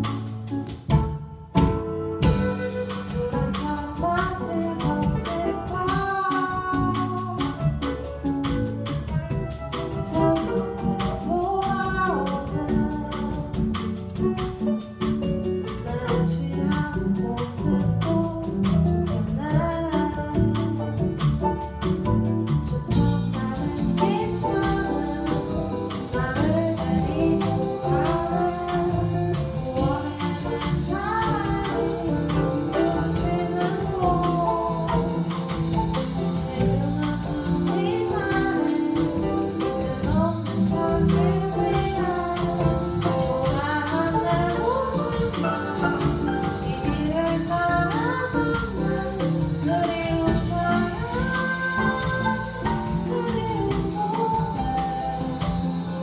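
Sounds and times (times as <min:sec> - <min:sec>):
live band playing: 0:00.0 - 0:56.0.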